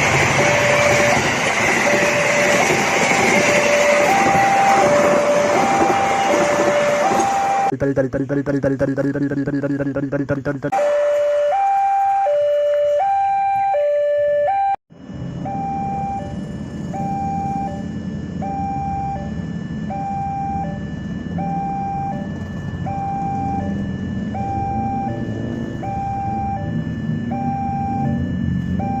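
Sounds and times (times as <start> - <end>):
single-pitch siren tone: 0.0 - 7.7, 10.7 - 29.0
two-tone siren: 0.0 - 7.8, 10.7 - 29.0
low engine rumble: 14.9 - 29.0.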